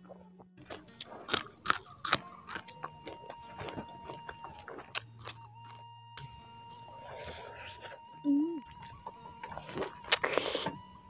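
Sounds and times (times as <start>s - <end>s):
wet chewing clicks: 0.0s - 5.8s, 8.8s - 10.8s
crisp bites into chili: 0.7s - 5.8s
faint steady high tone: 2.7s - 11.0s.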